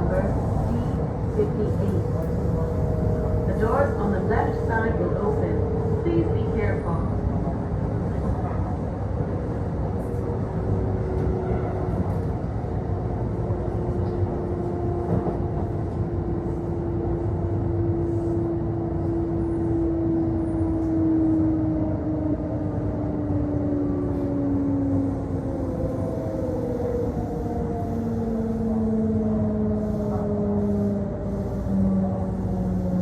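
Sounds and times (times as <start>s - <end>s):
train onboard equipment hum: 0.0s - 33.0s.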